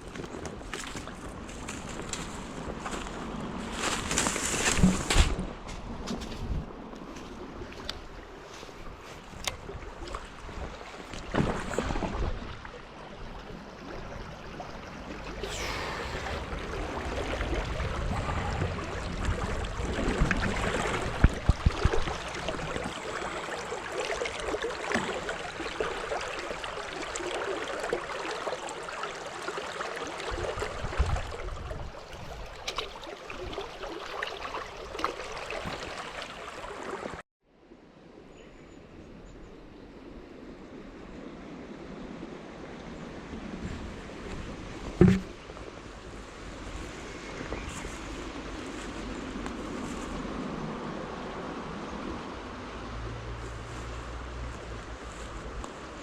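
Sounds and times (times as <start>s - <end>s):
small stream running: 0.0s - 37.2s, 39.0s - 56.0s
knocks and rustles: 3.9s - 6.6s, 44.9s - 45.4s.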